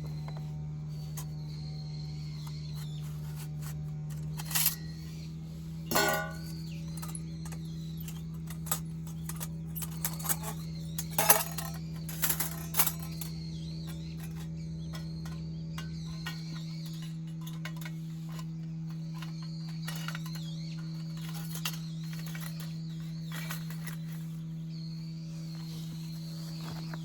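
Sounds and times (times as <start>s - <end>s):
low hum: 0.0s - 27.0s
metal objects clinking: 4.1s - 4.9s, 5.9s - 18.5s.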